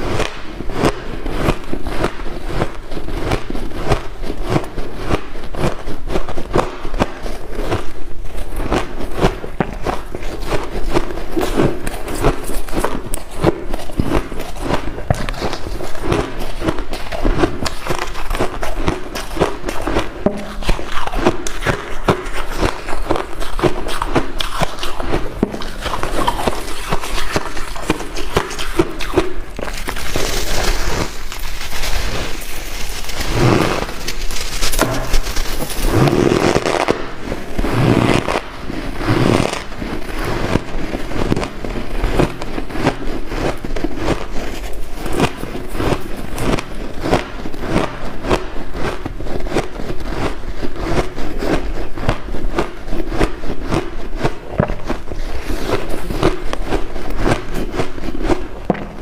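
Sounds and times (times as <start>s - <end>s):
scraping and rustling: 29.6s - 42.8s
heavy thuds: 58.6s - 59.0s.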